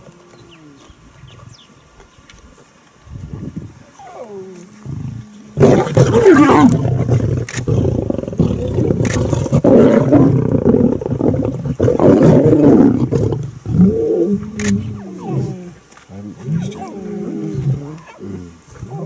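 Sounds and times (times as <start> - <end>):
lions roaring: 4.0 - 19.0.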